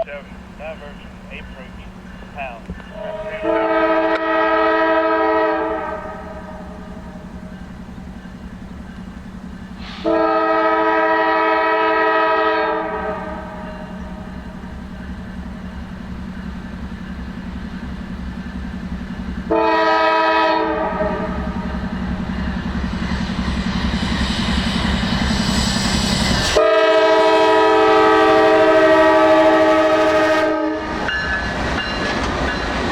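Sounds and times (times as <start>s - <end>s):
low engine rumble: 0.0s - 4.9s
train noise hiss: 0.0s - 32.9s
locomotive horn blasts: 2.8s - 7.0s, 9.8s - 14.3s, 19.5s - 21.8s, 26.6s - 31.1s.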